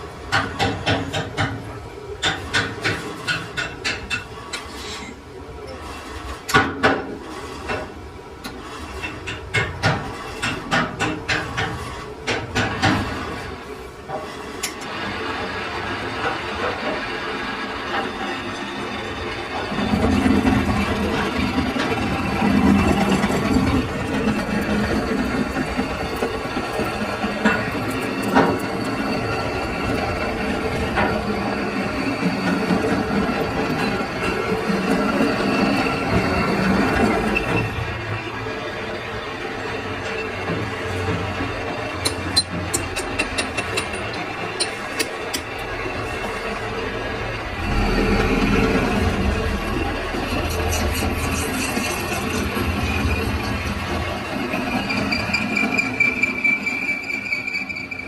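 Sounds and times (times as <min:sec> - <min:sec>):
machine hum: 0:43.0 - 0:54.3.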